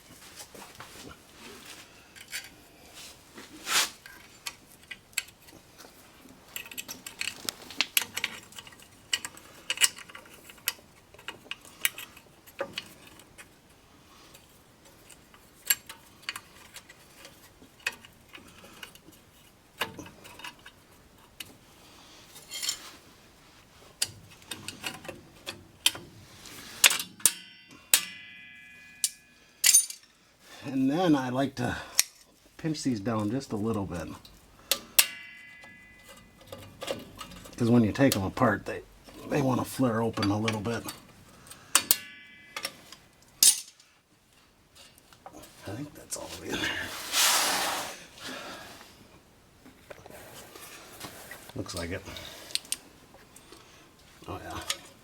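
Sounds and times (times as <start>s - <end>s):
sharp metallic clanks: 26.8s - 30.1s, 34.7s - 38.2s, 39.9s - 44.0s
metallic ringing: 27.2s - 30.1s, 34.6s - 38.1s, 39.8s - 44.0s
metal brake parts clicking: 29.0s - 30.1s, 40.1s - 43.9s.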